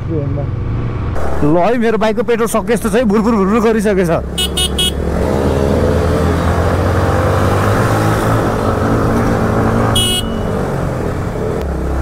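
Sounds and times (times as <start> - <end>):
horn beep: 4.4 - 5.0, 9.9 - 10.6.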